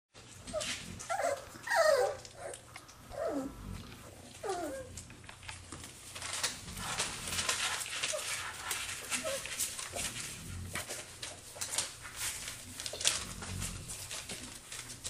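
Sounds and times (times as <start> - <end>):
clicks and rustles: 0.2 - 3.2, 3.8 - 15.0
puppies whining and yipping: 0.3 - 5.1, 6.9 - 10.1.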